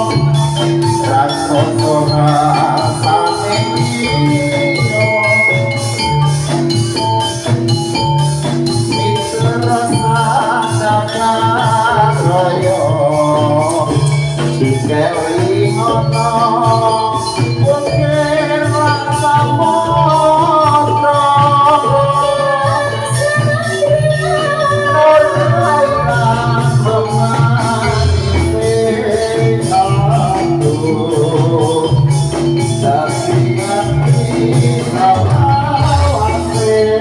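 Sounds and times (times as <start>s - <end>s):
band music through loudspeakers: 0.0s - 37.0s.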